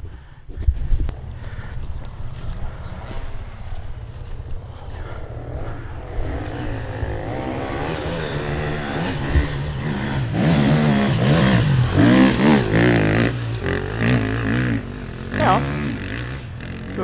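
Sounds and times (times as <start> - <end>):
dirt bike engine revving: 1.1 - 17.0.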